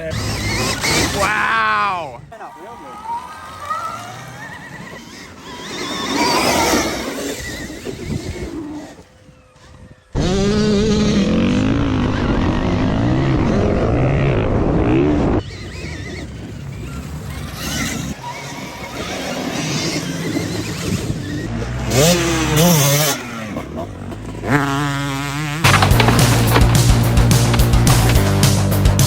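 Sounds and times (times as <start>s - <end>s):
dirt bike motor revving: 0.0s - 1.6s, 2.3s - 29.0s.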